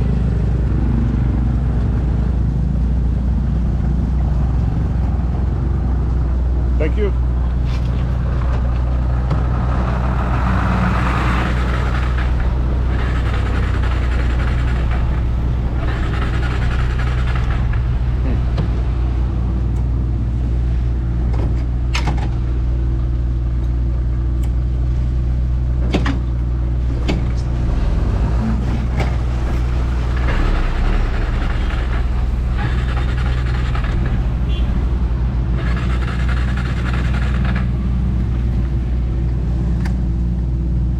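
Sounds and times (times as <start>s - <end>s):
motorbike engine running: 11.5s - 18.4s, 35.4s - 38.3s.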